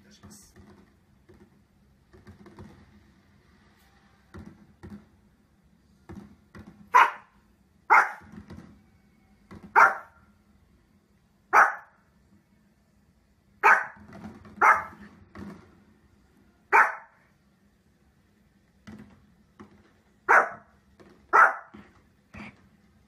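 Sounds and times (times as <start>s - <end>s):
small dog barking: 6.9s - 8.3s, 9.7s - 10.2s, 11.5s - 12.0s, 13.6s - 14.0s, 14.6s - 15.0s, 16.7s - 17.2s, 20.3s - 20.7s, 21.3s - 21.8s.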